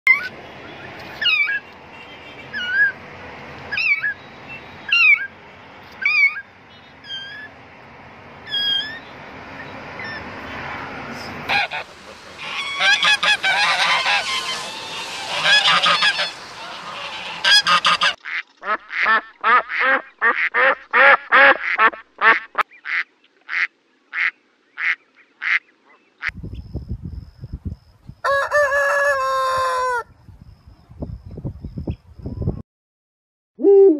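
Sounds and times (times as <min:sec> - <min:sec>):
single high calls: 0:08.5 - 0:09.1
geese honking: 0:11.5 - 0:25.6
ducks quacking: 0:11.5 - 0:26.3.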